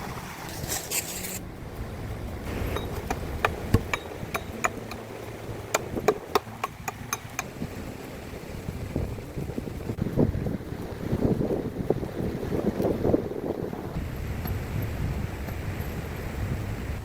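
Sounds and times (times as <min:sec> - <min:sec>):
short scrape: 0:00.0 - 0:01.4
low rushing background: 0:00.0 - 0:17.0
sharp knocks and taps: 0:02.4 - 0:09.6.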